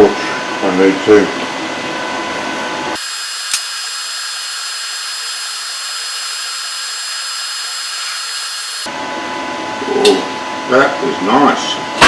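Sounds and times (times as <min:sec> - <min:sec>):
welding arc hissing: 0:03.0 - 0:08.9.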